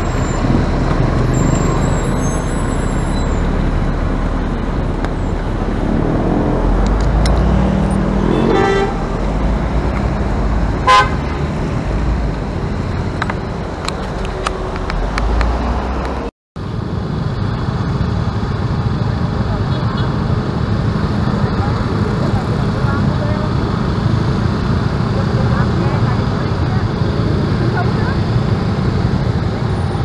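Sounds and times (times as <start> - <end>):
road traffic rumble: 0.0 - 30.0
car horn toots: 8.2 - 9.2, 10.8 - 11.4.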